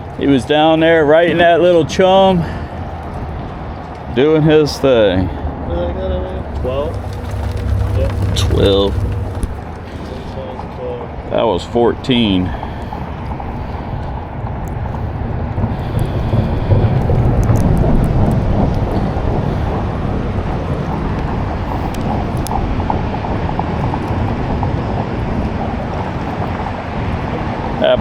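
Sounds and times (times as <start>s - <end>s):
wind buffeting microphone: 6.4s - 10.2s.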